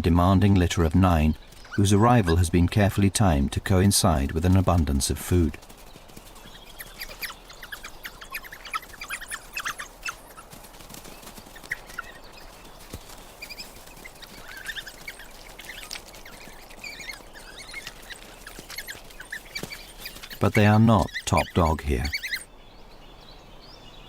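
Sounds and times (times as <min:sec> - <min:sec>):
coyote pups squeaking and whining: 0:06.4 - 0:22.5.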